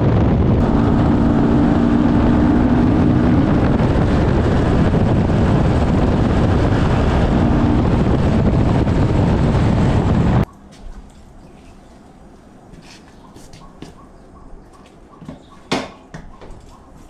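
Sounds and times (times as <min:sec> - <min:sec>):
motorcycle engine running: 0:00.0 - 0:10.4
wind rush on microphone: 0:00.0 - 0:10.5.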